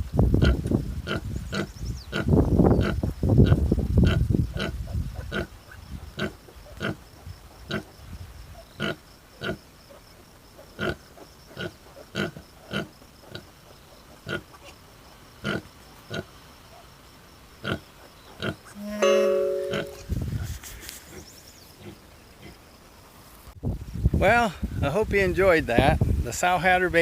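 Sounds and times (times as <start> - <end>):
pigs grunting: 6.2 - 7.0, 7.7 - 7.9, 8.8 - 9.6, 10.6 - 13.5, 17.6 - 18.7.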